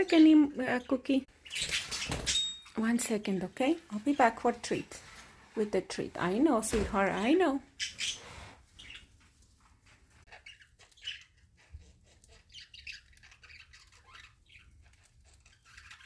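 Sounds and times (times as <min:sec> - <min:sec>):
budgie chirping and squawking: 0:01.3 - 0:02.4, 0:07.7 - 0:09.1, 0:10.2 - 0:16.0.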